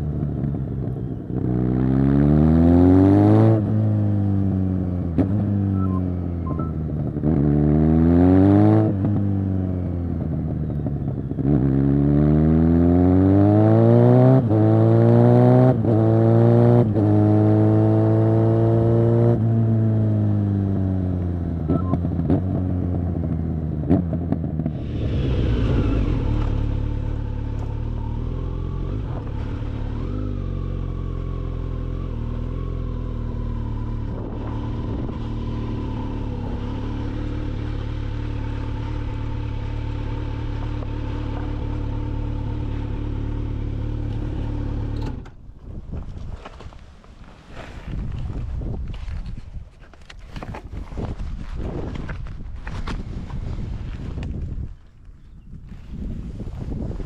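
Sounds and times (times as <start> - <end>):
motorcycle engine accelerating: 0.0 - 45.5
exhaust cracks: 23.0 - 32.5, 33.1 - 55.1.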